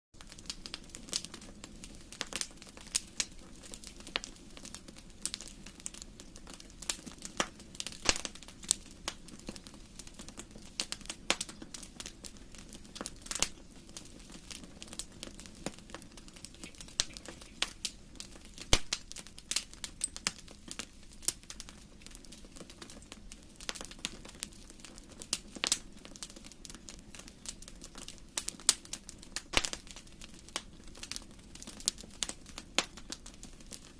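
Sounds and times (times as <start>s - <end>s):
faint steady hiss: 0.2s - 33.9s
fireplace fire crackling: 0.2s - 33.9s
sharp pops and snaps: 6.2s - 9.6s, 10.6s - 24.4s, 26.7s - 33.9s.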